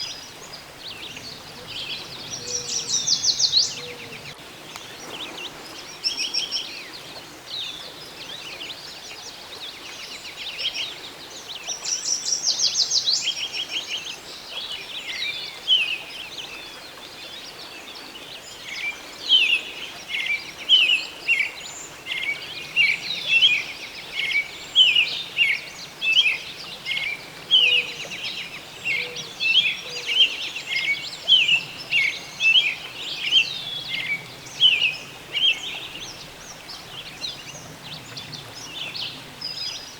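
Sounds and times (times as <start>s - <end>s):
songbird trill: 0.0s - 7.2s, 18.0s - 39.9s.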